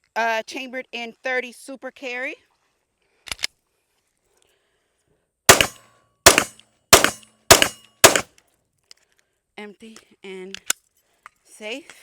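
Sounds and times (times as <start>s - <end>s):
pistol shots: 5.5s - 8.3s.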